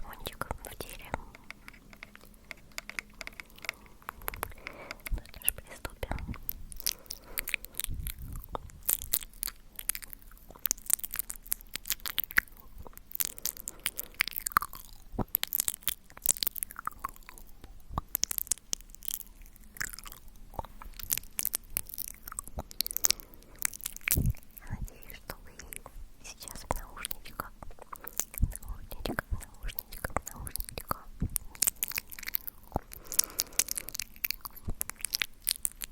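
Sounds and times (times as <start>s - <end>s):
wet lip and tongue clicks: 0.0s - 35.9s
squelchy mouth smacks: 19.7s - 35.9s.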